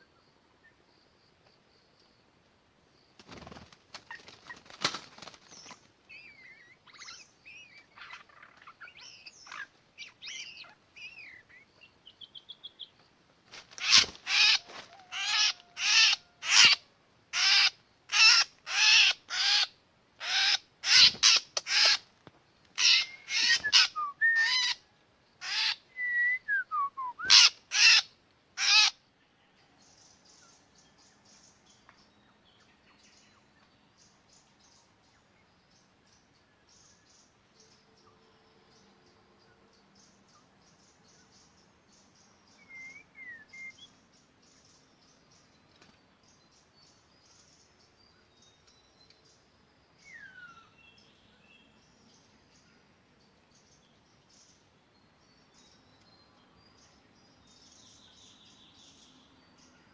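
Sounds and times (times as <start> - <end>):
faint insect buzz: 0.0 - 19.4
harsh rasping bird calls: 3.3 - 11.7, 13.7 - 22.1, 22.8 - 25.9, 27.2 - 29.0
bird singing whistled phrases: 23.0 - 24.7, 25.9 - 27.4, 42.6 - 43.9.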